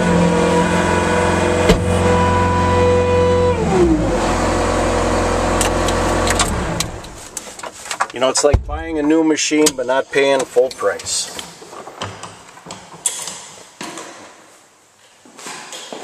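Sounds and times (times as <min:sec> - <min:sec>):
diesel engine running at high revs: 0:00.0 - 0:07.2.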